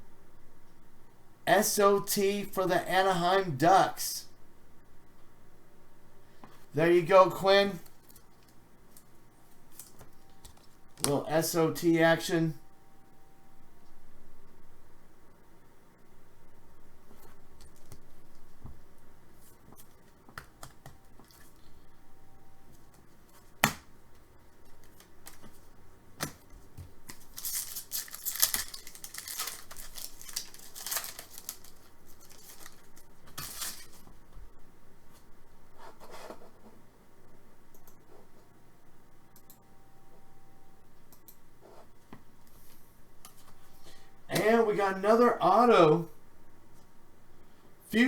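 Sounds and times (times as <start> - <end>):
card pack wrappers tearing: 27.0 - 34.0.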